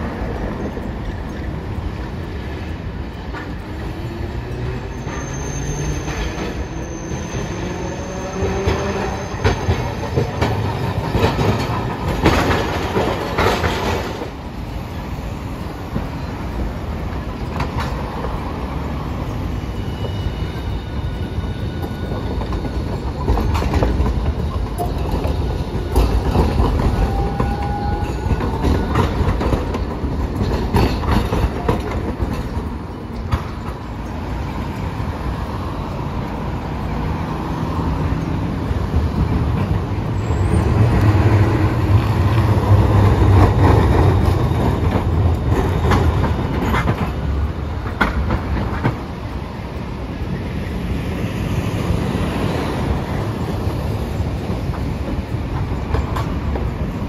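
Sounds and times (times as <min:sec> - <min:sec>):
tram motor whine: 0:00.0 - 0:57.0
wheels clacking over rail joints: 0:00.0 - 0:57.0
high wheel squeals: 0:03.5 - 0:11.1, 0:16.0 - 0:29.8.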